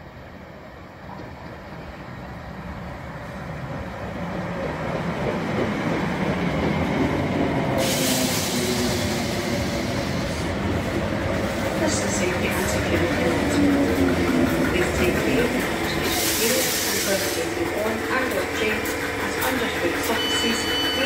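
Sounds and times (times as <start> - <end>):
train wheels on rails: 0.9 - 21.0
train hiss: 7.7 - 10.6, 15.8 - 17.9.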